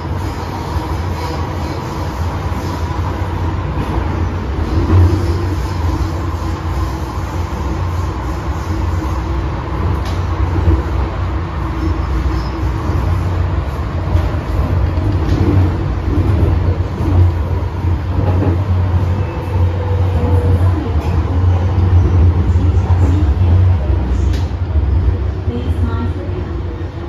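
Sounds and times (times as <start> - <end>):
train wheels rumbling: 0.0 - 27.0.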